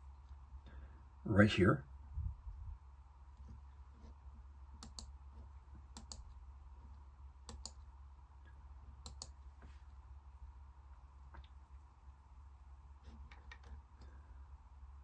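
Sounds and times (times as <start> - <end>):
low steady hum: 0.0 - 15.0
computer mouse clicks: 4.7 - 6.4, 7.4 - 7.8, 9.0 - 9.4, 13.0 - 14.1.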